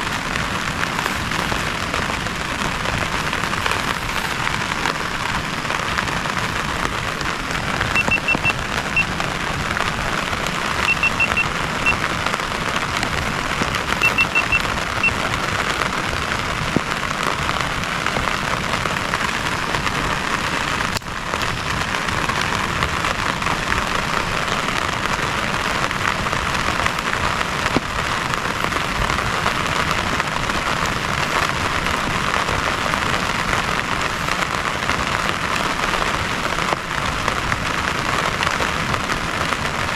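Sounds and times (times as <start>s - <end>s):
heavy rain: 0.0s - 39.9s
short high peeps: 8.0s - 9.1s, 10.8s - 12.0s, 14.0s - 15.2s.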